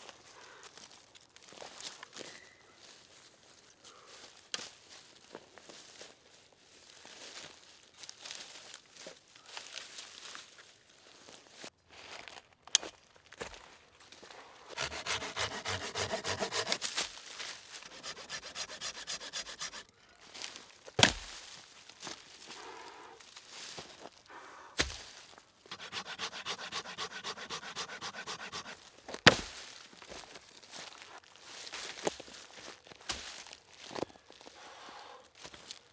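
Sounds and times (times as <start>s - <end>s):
rapid rhythmic scraping strokes: 14.8s - 16.9s, 17.9s - 19.8s, 25.7s - 28.8s.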